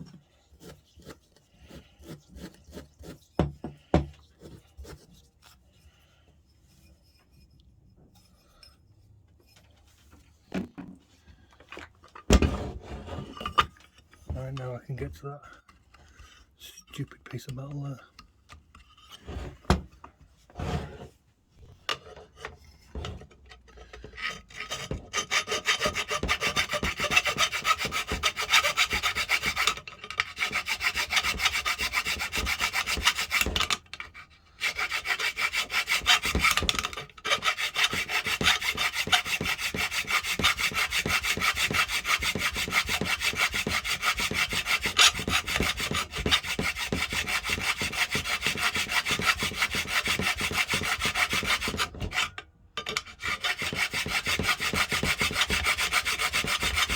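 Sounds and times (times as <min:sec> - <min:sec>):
hand file rasping metal: 0:00.0 - 0:05.6, 0:23.8 - 0:56.9.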